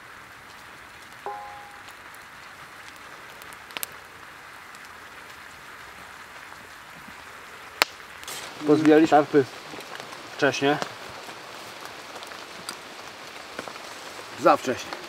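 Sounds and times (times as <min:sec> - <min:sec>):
rain falling on woods: 0:00.0 - 0:15.0
short ringing clink: 0:01.3 - 0:01.9.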